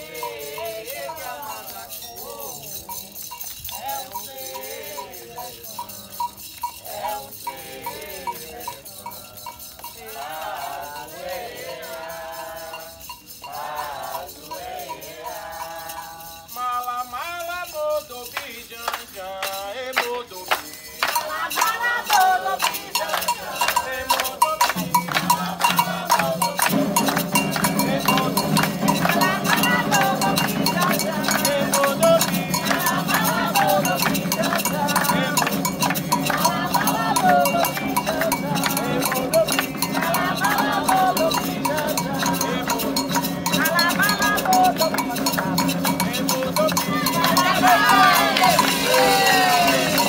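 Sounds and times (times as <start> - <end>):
bell in steady rhythm: 0.0 - 50.0
shaken rattle beat: 0.0 - 50.0
voices singing a chant: 0.0 - 50.0
hand drums: 17.8 - 50.0.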